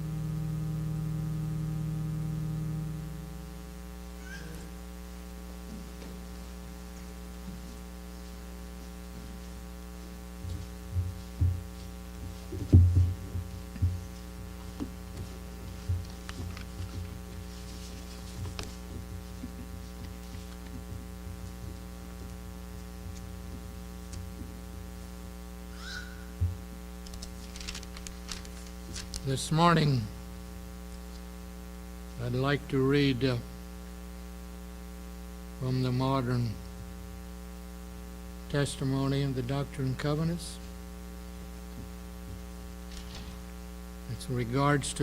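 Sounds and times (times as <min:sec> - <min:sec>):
electrical mains hum: 0:00.0 - 0:45.0
low thumps and knocks: 0:10.4 - 0:17.3.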